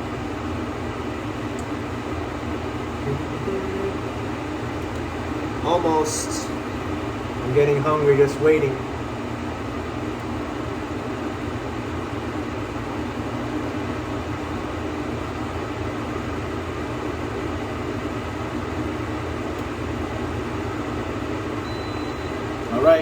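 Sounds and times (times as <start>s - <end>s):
mechanical hum and whoosh: 2.2s - 14.4s.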